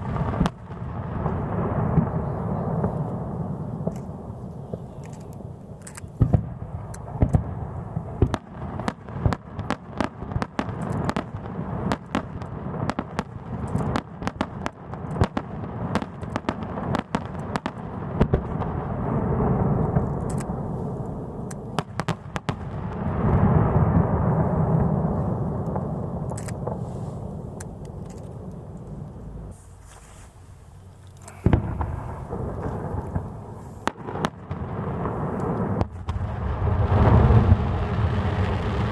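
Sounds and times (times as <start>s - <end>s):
fireworks bangs and crackling: 0.0s - 38.9s
low rumble: 31.4s - 33.9s.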